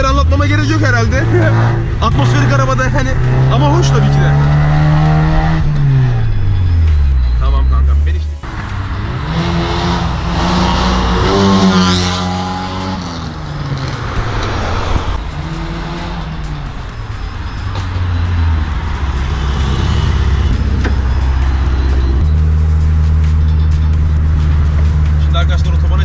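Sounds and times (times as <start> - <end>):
car engine at full throttle: 0.0 - 26.0
car engine driving past: 17.7 - 22.6.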